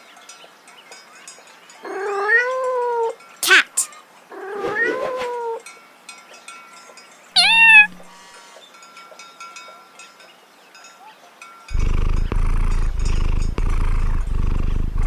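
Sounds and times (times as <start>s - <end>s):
cat meowing: 1.9s - 5.6s, 7.4s - 8.1s.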